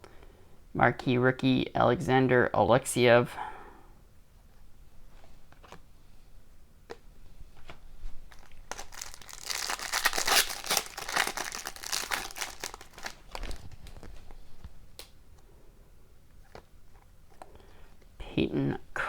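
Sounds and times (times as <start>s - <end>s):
foil wrapper tearing and crinkling: 8.3s - 14.2s.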